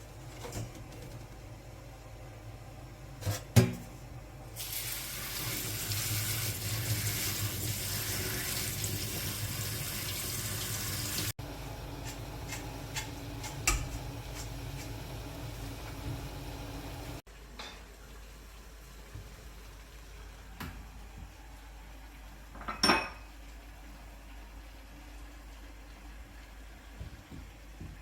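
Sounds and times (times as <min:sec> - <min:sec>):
kitchen tap water running: 0:04.4 - 0:17.2.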